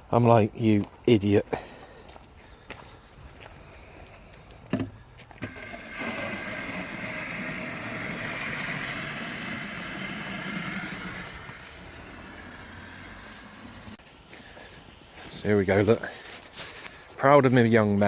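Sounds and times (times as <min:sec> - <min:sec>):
mechanical drone: 0:06.6 - 0:14.0.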